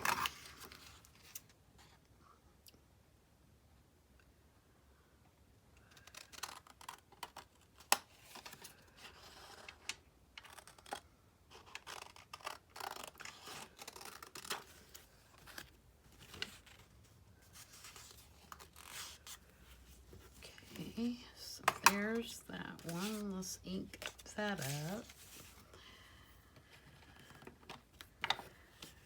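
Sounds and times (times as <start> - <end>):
paper rustling: 13.5 - 25.7.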